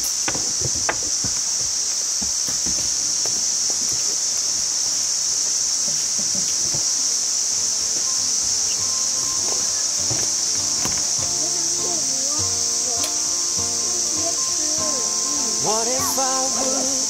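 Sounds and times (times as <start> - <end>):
light knocks: 0.0 - 3.4
crickets chirping: 0.0 - 17.0
soft background music: 8.2 - 17.0.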